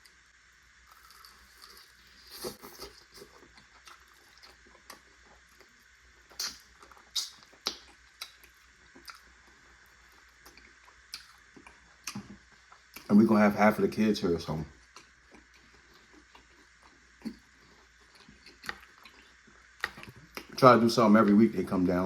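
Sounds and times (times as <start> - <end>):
person chewing: 0.9 - 13.1, 14.8 - 20.6
wet mouth clicks and smacks: 6.3 - 9.2, 10.5 - 12.3.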